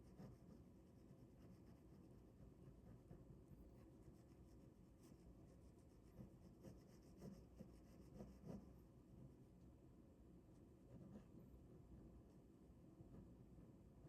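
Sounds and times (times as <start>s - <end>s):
pen scratching on paper: 0.0s - 8.8s.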